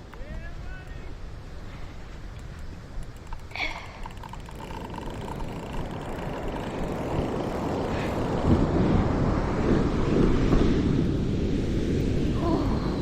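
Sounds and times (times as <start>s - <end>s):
ocean surf washing on beach: 0.0s - 13.0s
faint ticks: 1.6s - 8.6s.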